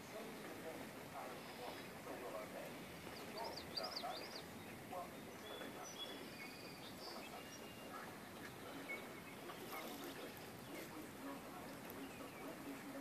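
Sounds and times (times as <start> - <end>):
low hiss: 0.0 - 13.0
bird chirps: 3.0 - 11.0, 11.9 - 13.0.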